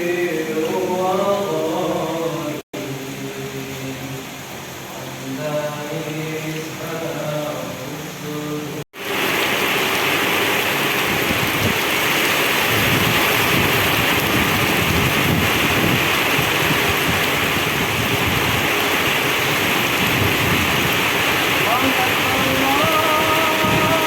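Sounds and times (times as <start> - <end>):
heavy rain in strong wind: 0.0 - 24.0
low wind buffeting: 10.2 - 24.0
person singing: 21.6 - 24.0.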